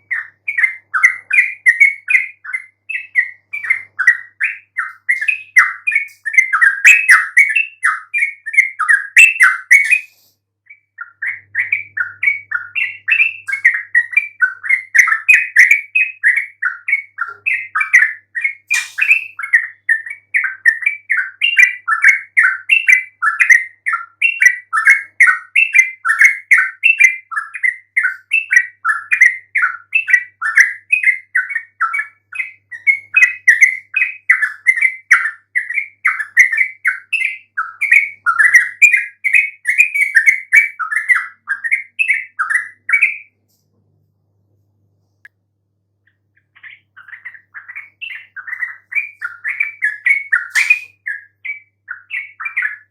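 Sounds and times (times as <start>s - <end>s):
bulbul chirping: 17.1s - 20.0s, 46.1s - 51.3s.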